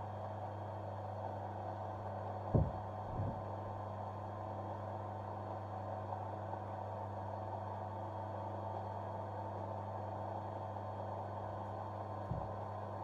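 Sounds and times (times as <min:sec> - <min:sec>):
short low knocks: 0:02.6 - 0:03.4.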